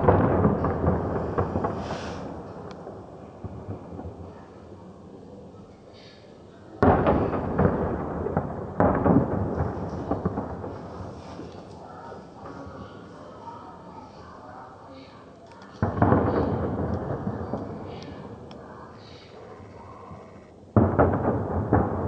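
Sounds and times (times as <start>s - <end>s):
rolling rumble of fireworks: 0.0s - 15.1s, 15.7s - 22.0s
firework shell bursts: 0.2s - 2.7s.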